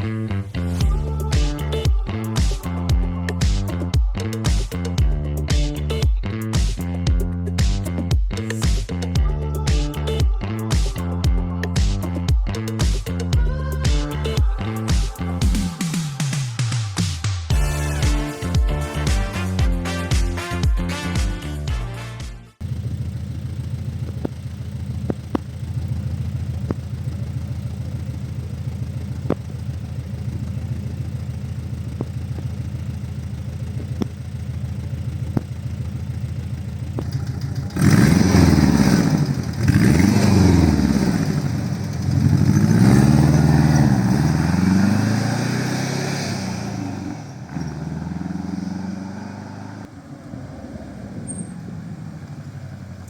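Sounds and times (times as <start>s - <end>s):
car engine idling and revving: 0.0s - 21.8s, 22.5s - 53.0s.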